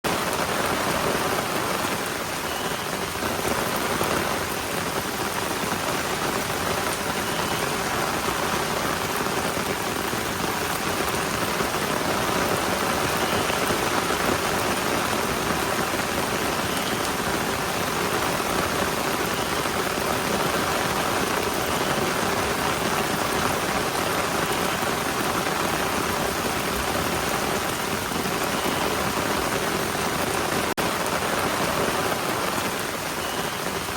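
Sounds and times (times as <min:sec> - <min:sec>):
heavy rain falling: 0:00.0 - 0:33.9.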